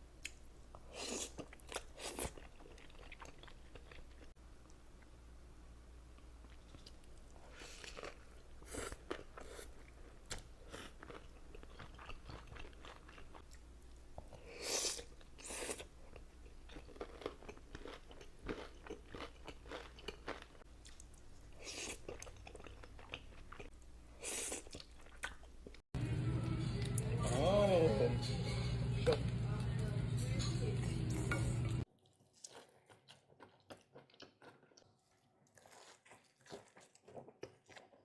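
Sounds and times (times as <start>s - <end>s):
person chewing crunchy food: 0.2s - 4.4s, 6.4s - 25.8s, 31.8s - 38.0s.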